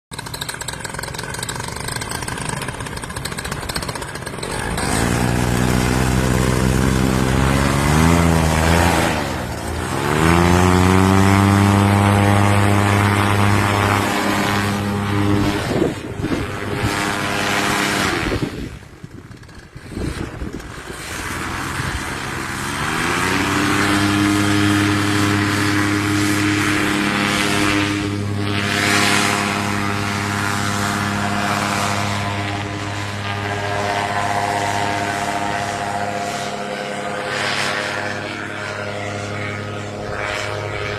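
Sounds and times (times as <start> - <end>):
propeller aircraft engine: 0.1 - 40.9
wind noise: 4.5 - 36.2.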